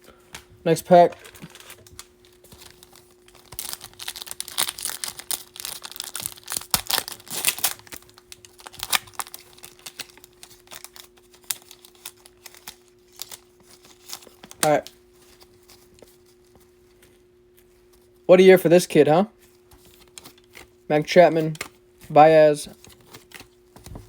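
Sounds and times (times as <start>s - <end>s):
foil wrapper tearing and crinkling: 1.1s - 15.9s.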